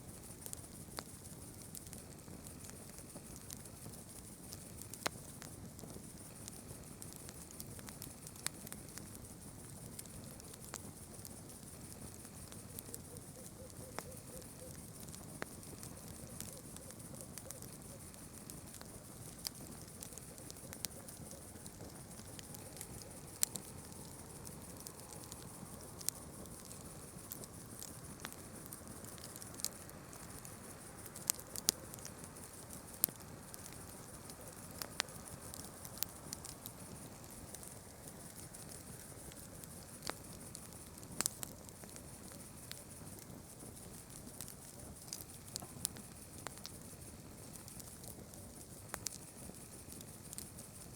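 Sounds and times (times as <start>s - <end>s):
high-pitched hiss: 0.0s - 50.9s
low rustle of fire: 0.0s - 50.9s
burning wood popping and snapping: 14.0s - 50.8s.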